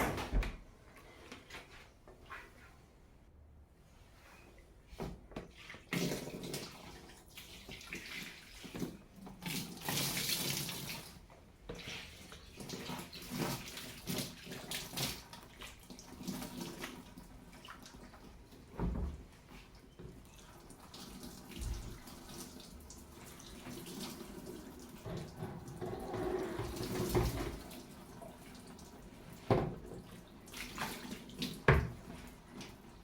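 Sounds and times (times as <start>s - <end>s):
water splashing and running: 26.5s - 33.0s.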